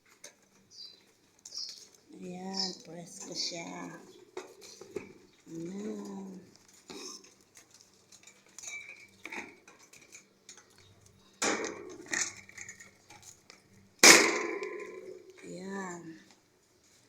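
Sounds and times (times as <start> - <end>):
wire bird cage clinking: 2.6 - 15.5.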